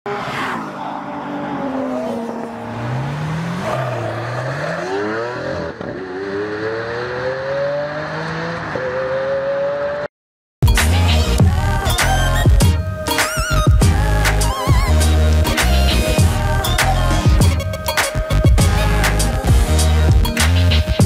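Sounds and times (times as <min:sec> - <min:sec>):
car engine accelerating hard: 0:00.1 - 0:10.1.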